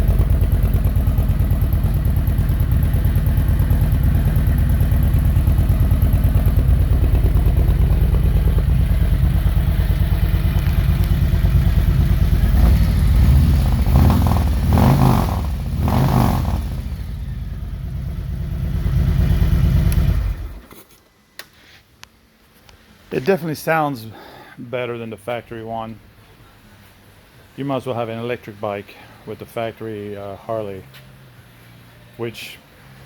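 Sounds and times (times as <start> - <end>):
motorcycle engine idling and revving: 0.0 - 20.7.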